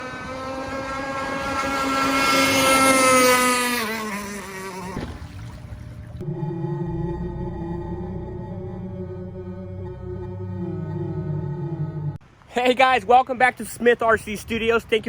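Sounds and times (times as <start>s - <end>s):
rc boat engine passing: 0.0s - 12.2s
music: 6.2s - 12.2s.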